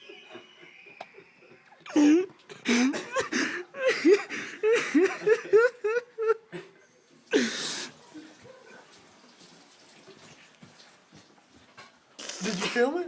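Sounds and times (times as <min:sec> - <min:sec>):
person laughing hard: 0:01.2 - 0:06.7.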